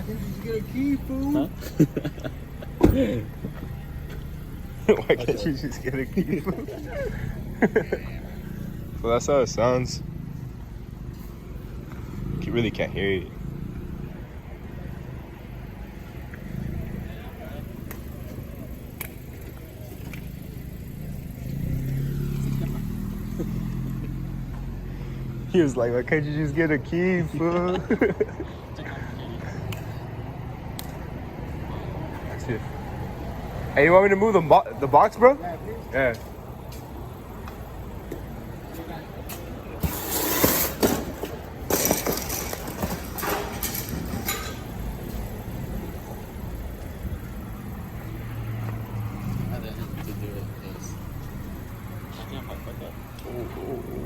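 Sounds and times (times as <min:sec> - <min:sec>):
car engine running: 0:00.0 - 0:27.2, 0:40.8 - 0:54.0
clattering and scraping: 0:39.8 - 0:45.3
knocks and clinks: 0:41.7 - 0:44.8.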